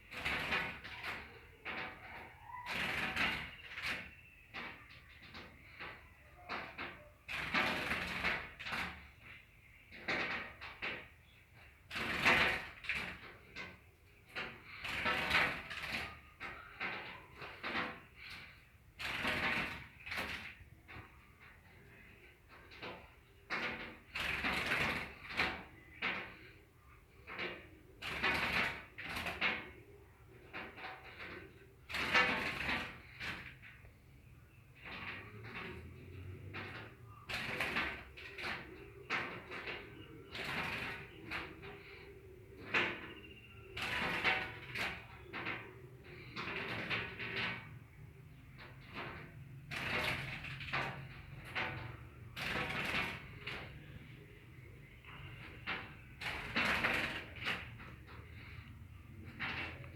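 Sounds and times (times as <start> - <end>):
bird fluttering against a mirror: 10.2 - 21.1, 30.6 - 33.8, 34.8 - 54.1, 54.8 - 59.9.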